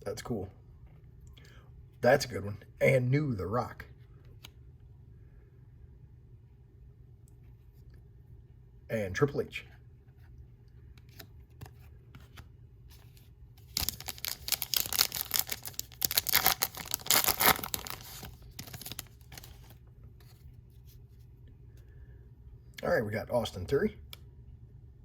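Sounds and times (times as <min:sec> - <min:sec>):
wrapper tearing and crinkling: 0:13.7 - 0:19.7.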